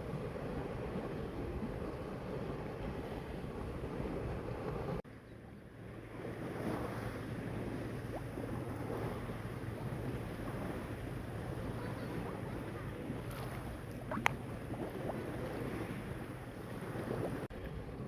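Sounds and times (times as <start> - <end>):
wind on microphone: 0.0 - 5.0, 5.7 - 18.0
sea waves washing: 5.8 - 18.0.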